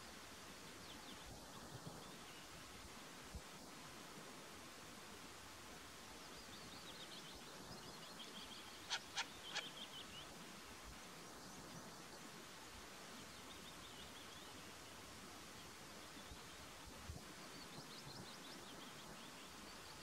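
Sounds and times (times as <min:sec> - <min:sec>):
bird chirping: 0:06.8 - 0:10.3
loud sharp bird calls: 0:08.8 - 0:09.9.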